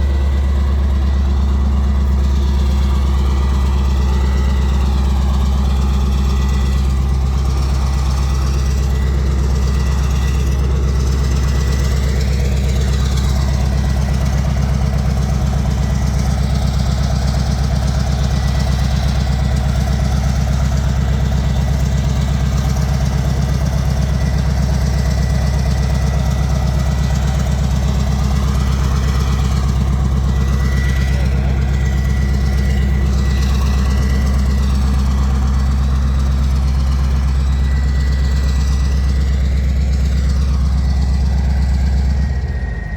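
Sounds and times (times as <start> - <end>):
diesel engine idling: 0.0 - 42.9
thin steady whine: 0.0 - 42.9.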